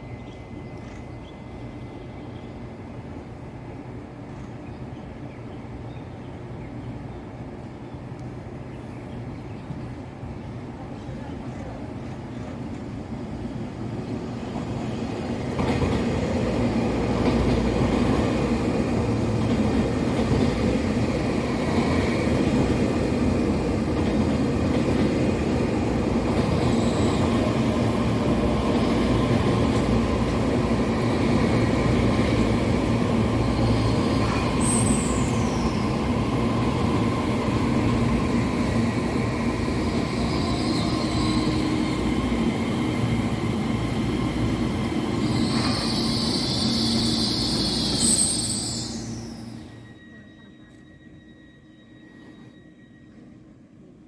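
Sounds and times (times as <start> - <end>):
electric train running past: 11.9 - 54.0.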